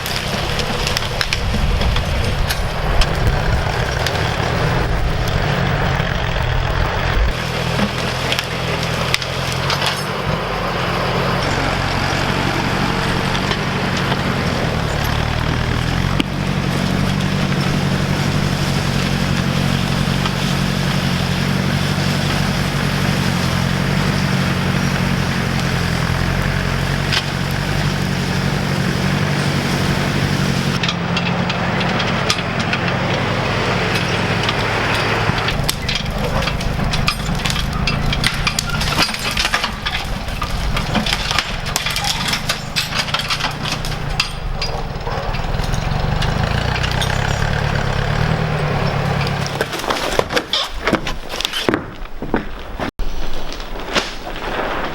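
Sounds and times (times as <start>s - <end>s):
tractor engine running: 0.0s - 54.9s
sharp cracks and snaps: 49.2s - 54.9s.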